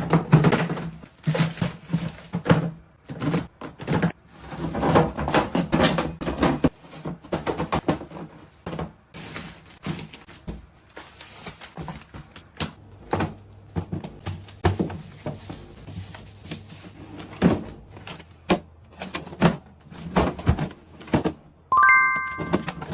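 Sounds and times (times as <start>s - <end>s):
food containers clattering: 0.0s - 10.5s.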